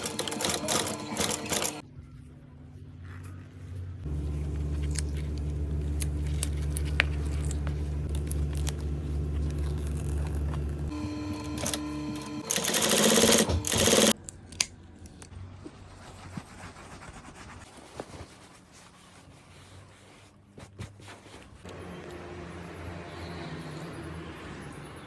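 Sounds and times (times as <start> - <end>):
electric motor humming and whining: 7.9 - 12.6.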